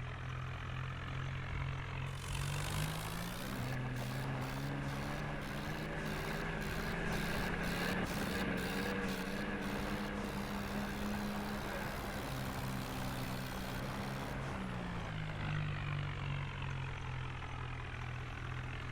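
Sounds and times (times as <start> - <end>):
tractor diesel engine revving: 2.1 - 15.5.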